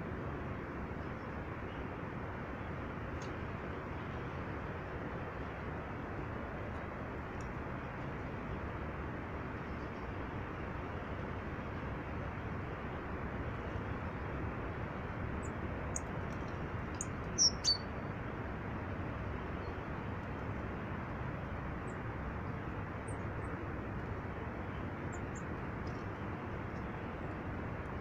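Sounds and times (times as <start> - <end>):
steady rushing background noise: 0.0 - 28.0
small birds chirping: 17.0 - 18.0.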